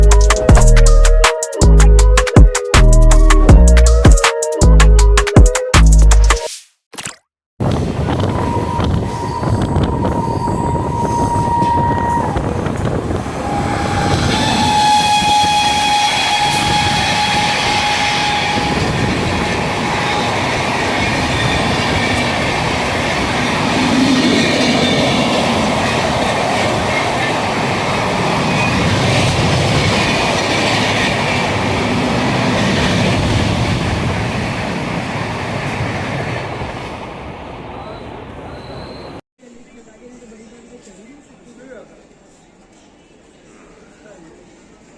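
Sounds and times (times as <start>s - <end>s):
train wheels rushing on rails: 7.6s - 39.2s
train horn blowing: 8.2s - 22.2s.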